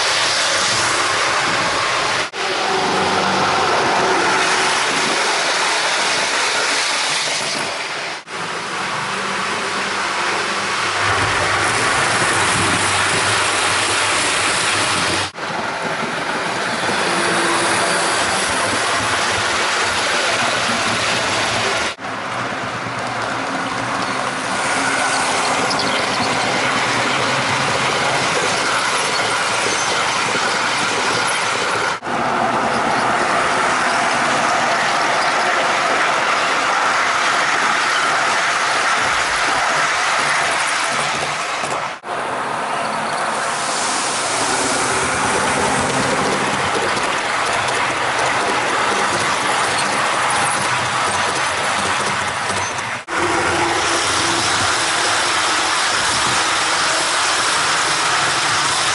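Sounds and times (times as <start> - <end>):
model train wheels whirring on rails: 0.0 - 58.9
clickety-clack over track joints: 11.0 - 32.0, 32.6 - 42.0, 44.5 - 58.9.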